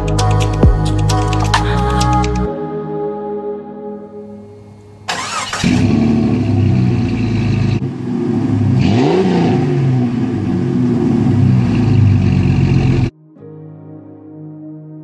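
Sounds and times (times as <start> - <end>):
car engine cranking and idling: 5.1 - 13.1
engine revving: 5.1 - 13.1.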